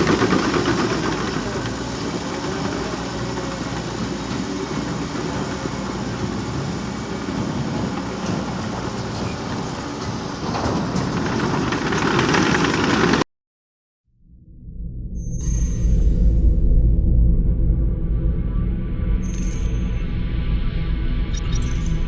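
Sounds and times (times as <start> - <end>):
diesel engine running: 0.0 - 13.2
tracks rattling: 0.0 - 13.2.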